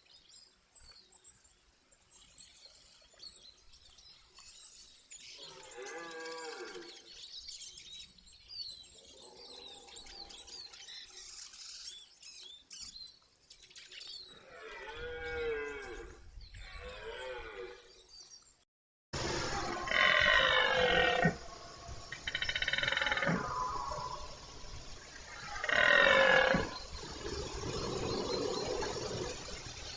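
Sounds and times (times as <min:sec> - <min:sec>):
deer stag bellowing: 0:19.2 - 0:24.3
small birds chirping: 0:19.2 - 0:29.9.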